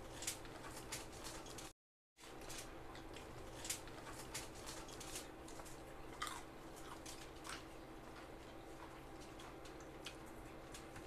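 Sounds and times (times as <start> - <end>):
steady low hum: 0.0 - 11.0
chewing and food crunches: 2.3 - 11.0
fingers picking through food: 2.4 - 11.0.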